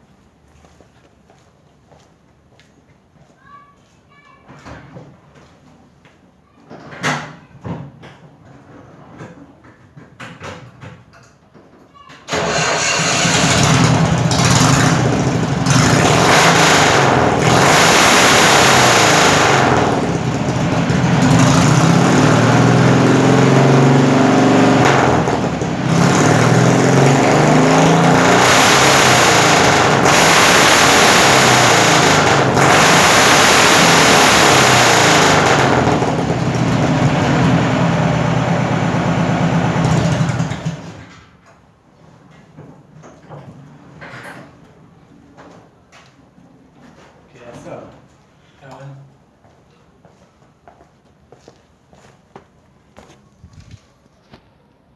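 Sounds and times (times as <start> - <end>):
car engine revving: 12.4 - 41.0.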